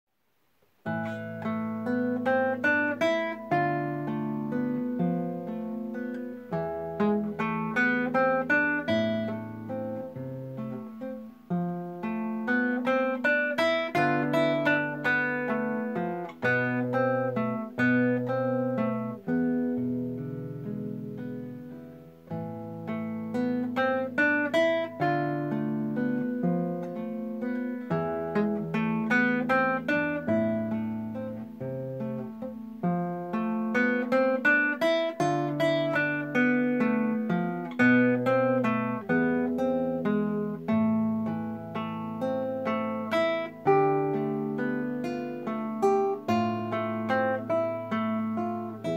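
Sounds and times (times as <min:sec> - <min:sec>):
acoustic guitar playing: 0:00.2 - 0:48.9.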